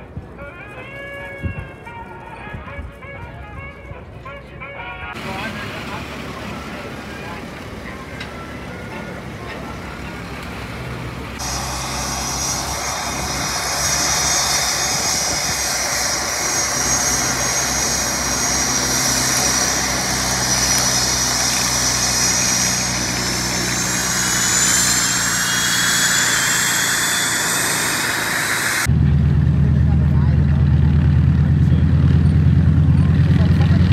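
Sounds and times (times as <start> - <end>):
propeller plane engine running: 5.2 - 33.9
high whine rising in pitch: 11.4 - 29.4.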